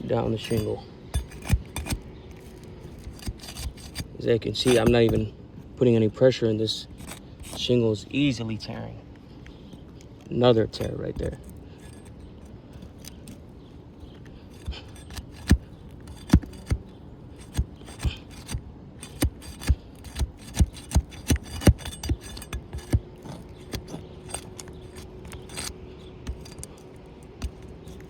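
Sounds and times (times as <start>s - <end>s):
tool clicking and scraping shingles: 0.2s - 5.3s, 6.8s - 7.9s, 9.7s - 28.0s
shingles tearing: 14.3s - 28.0s.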